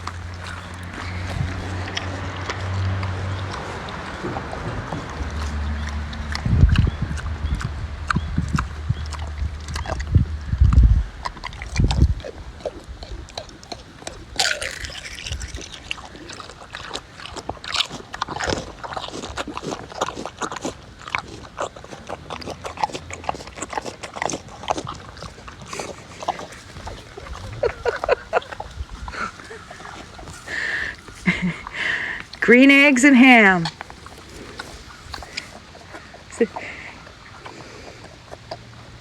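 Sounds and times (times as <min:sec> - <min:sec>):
low rumbling thumps: 0:00.0 - 0:13.0
pigs chewing and crunching: 0:00.0 - 0:39.0.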